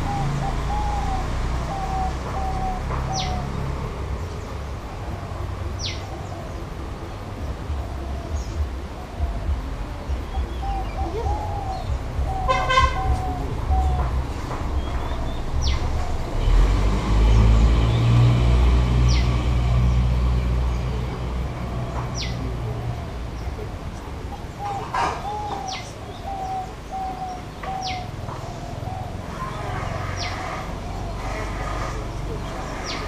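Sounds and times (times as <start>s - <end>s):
wavering low bird call: 0.0s - 3.6s, 10.2s - 16.5s, 24.2s - 33.0s
birds chirping: 0.0s - 33.0s
low rumble: 6.6s - 23.8s.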